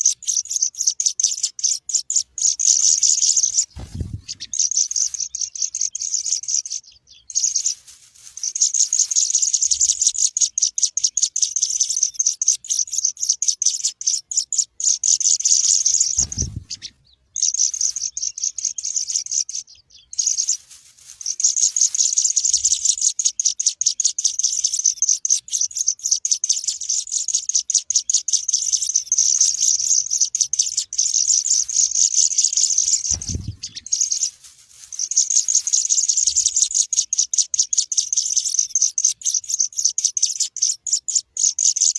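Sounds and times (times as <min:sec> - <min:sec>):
chicks cheeping: 0:00.0 - 0:41.9
dull low thumps: 0:03.8 - 0:04.6, 0:16.2 - 0:17.0, 0:33.0 - 0:33.9.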